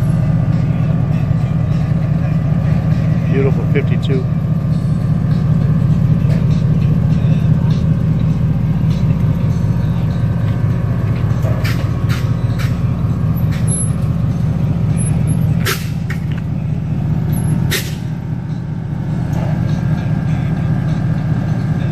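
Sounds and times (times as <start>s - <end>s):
car engine rumble: 0.0s - 21.9s
short sharp hisses: 17.7s - 18.0s.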